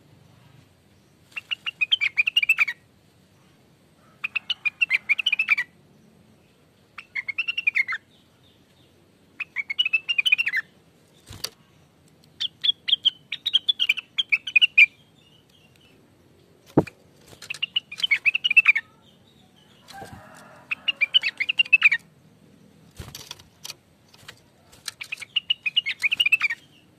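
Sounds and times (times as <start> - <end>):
bird chattering song: 1.0 - 2.8, 4.2 - 5.8, 6.4 - 16.0, 16.7 - 26.9.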